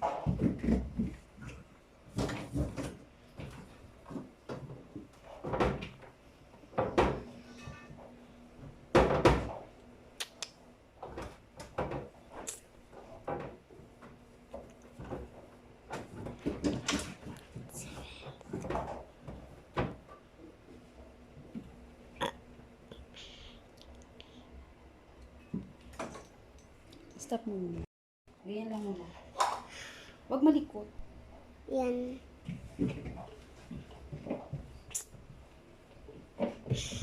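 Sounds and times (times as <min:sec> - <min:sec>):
refrigerator parts clunking: 0:11.0 - 0:20.3.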